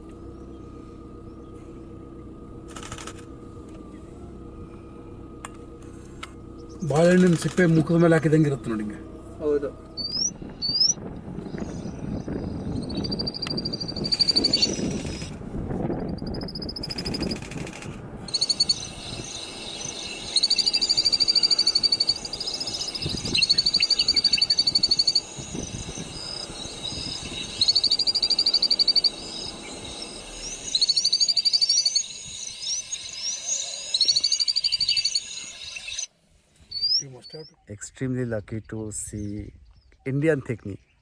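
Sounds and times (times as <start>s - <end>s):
high rapid pulsing animal trill: 6.8s - 15.4s, 16.0s - 36.1s
thin chirps: 9.9s - 15.3s, 16.1s - 37.6s.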